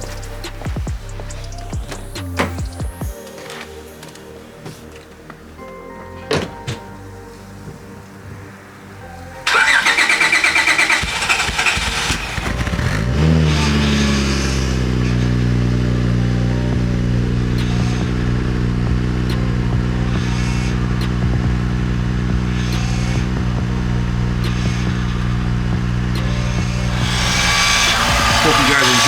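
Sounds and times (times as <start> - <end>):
car engine revving and idling: 0.0 - 3.2, 9.0 - 29.0
power steering pump whine: 9.4 - 29.0
starter cranking engine: 9.5 - 15.6, 24.4 - 29.0.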